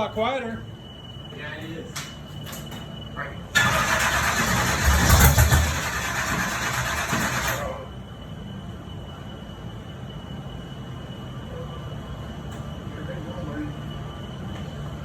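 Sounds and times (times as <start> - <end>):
faint high whine: 0.0 - 15.0
truck engine cranking: 3.6 - 7.8.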